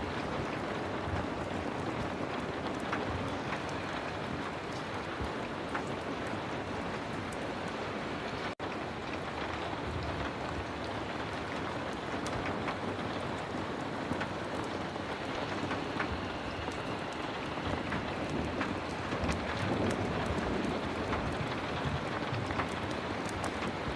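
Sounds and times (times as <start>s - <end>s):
heavy rain: 0.0s - 23.9s.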